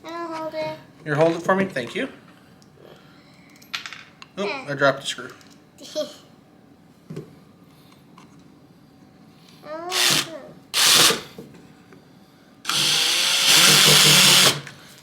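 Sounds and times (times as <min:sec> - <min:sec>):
power drill driving a screw: 0:09.9 - 0:11.3, 0:12.7 - 0:14.7.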